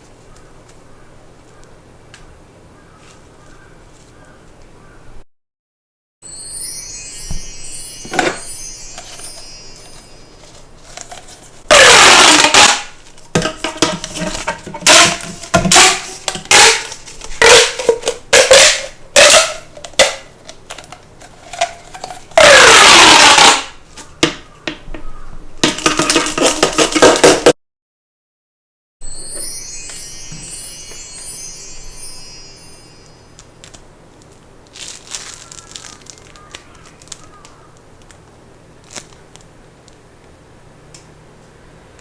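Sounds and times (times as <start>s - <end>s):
plastic toy balls rubbing: 10.4s - 24.4s, 25.6s - 27.5s, 34.2s - 39.5s.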